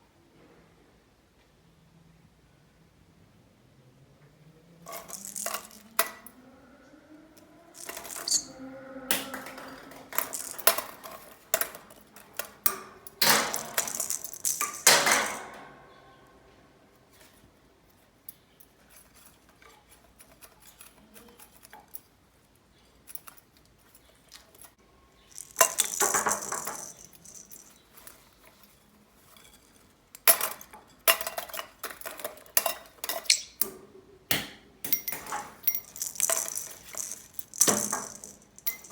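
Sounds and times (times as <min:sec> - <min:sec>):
toy balls clattering and rolling: 0:04.8 - 0:06.4, 0:07.4 - 0:15.7, 0:18.1 - 0:33.7, 0:34.9 - 0:38.9.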